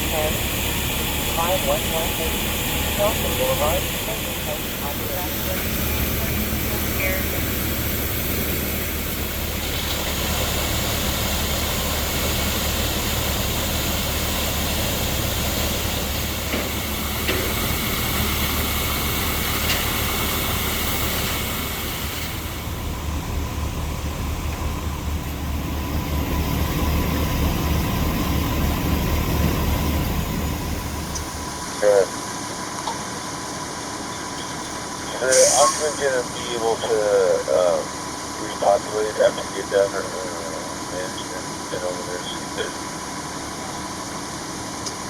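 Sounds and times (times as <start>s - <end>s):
vehicle engine idling: 0.0s - 45.0s
rushing hiss: 35.3s - 36.2s.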